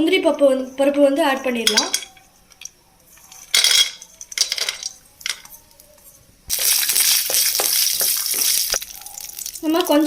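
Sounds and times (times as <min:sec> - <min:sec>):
nuts clinking in a pan: 0:01.7 - 0:05.6
nuts sizzling in hot fat: 0:06.5 - 0:10.0.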